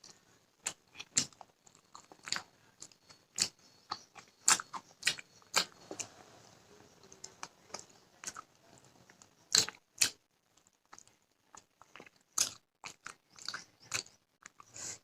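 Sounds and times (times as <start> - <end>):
person biting and chewing food: 0.6 - 6.1, 9.2 - 15.0.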